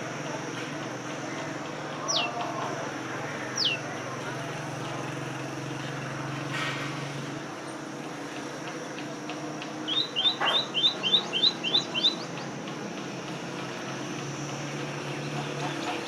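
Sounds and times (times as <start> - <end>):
small bird chirping: 2.0 - 2.6, 3.5 - 4.0, 9.8 - 12.6.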